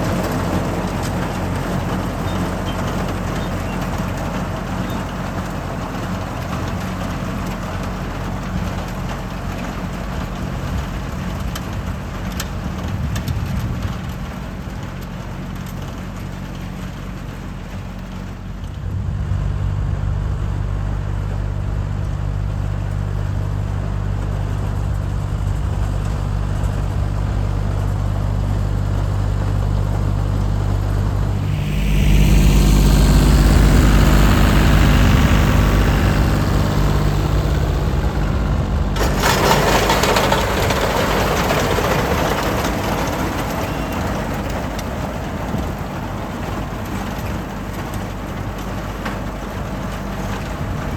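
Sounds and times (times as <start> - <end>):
tractor engine running: 0.0 - 50.9
mower rushing noise: 17.4 - 50.9.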